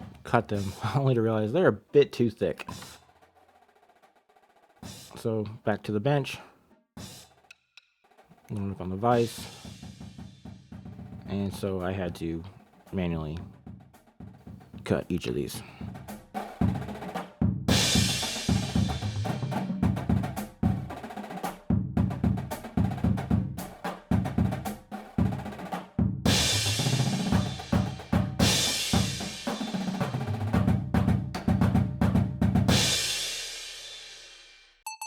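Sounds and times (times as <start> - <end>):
drum kit beat: 0.0 - 1.2, 2.5 - 5.6, 7.0 - 35.0
cymbal crashes: 17.7 - 19.7, 26.3 - 29.7, 32.7 - 34.7.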